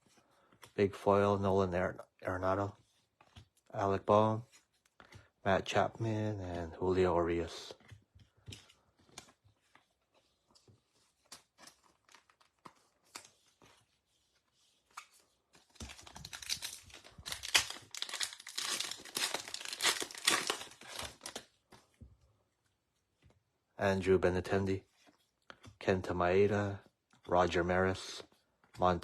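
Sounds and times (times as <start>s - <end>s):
foil wrapper tearing and crinkling: 15.8s - 21.5s.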